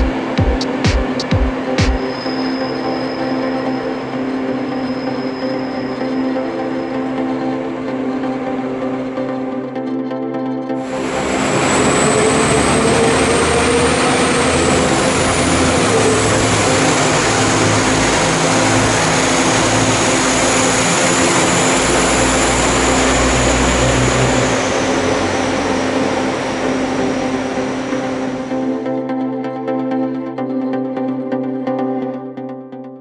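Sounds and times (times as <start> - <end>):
high whine: 0.0 - 31.3
train hum: 10.8 - 28.8.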